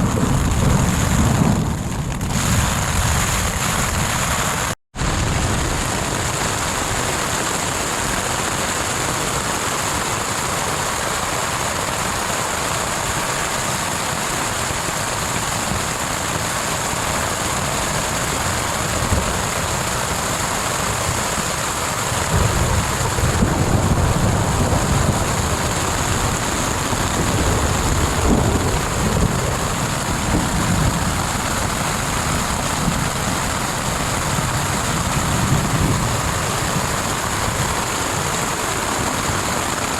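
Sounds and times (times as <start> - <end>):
thunder rumbling: 0.0 - 7.0, 21.2 - 39.9
heavy rain hissing: 0.0 - 39.9.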